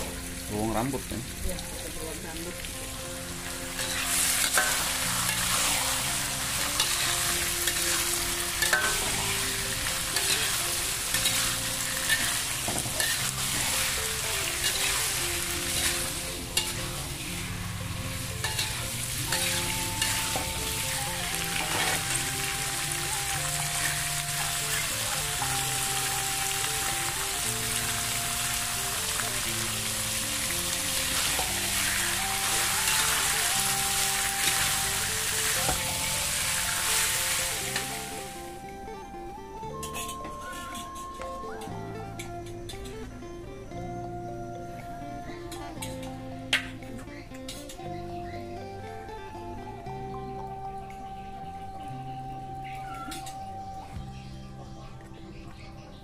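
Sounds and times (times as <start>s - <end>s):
food sizzling in hot oil: 0.0s - 38.6s
background music of held notes: 0.0s - 56.0s.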